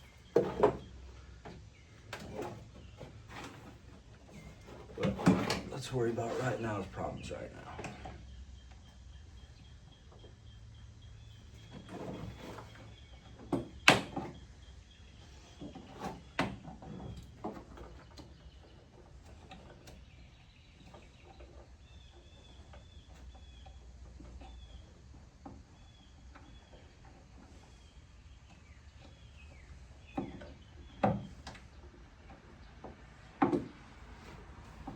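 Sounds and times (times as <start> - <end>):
sharp knocks and clunks: 0.2 - 0.9, 32.8 - 34.0.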